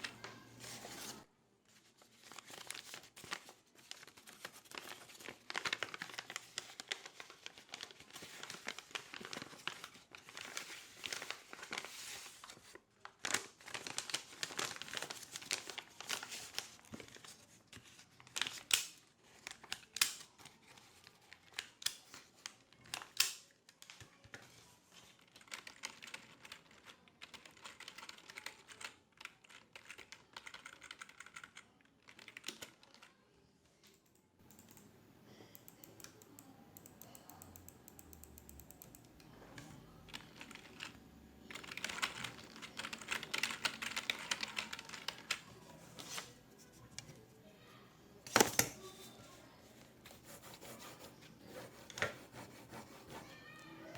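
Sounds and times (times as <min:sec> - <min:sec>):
typing on computer keyboard: 0:25.2 - 0:33.1, 0:35.6 - 0:39.2, 0:40.1 - 0:45.4.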